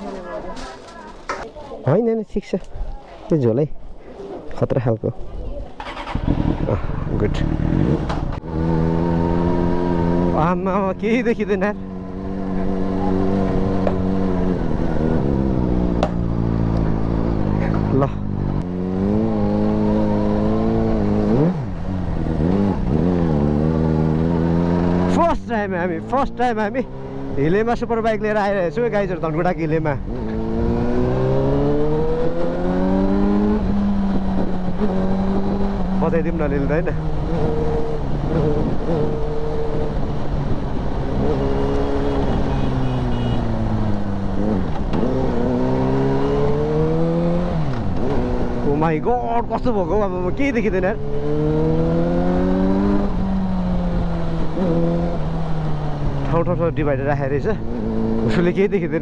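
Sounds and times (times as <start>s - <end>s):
motorcycle engine: 5.4s - 59.0s
motorcycle engine running: 5.8s - 10.4s.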